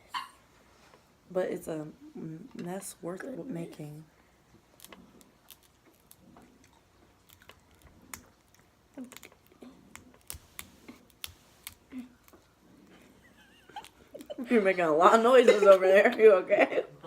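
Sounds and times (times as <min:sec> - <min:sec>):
crab shells cracking: 0:04.7 - 0:12.4
mouth sounds of eating: 0:04.8 - 0:10.2.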